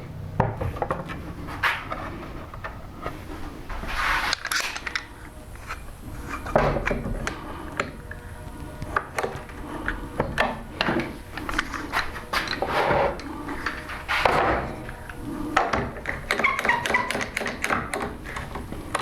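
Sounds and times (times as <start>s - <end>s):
scraping: 0.0s - 19.0s
wood and tools knocking: 0.4s - 3.2s, 4.3s - 8.2s, 8.9s - 19.0s.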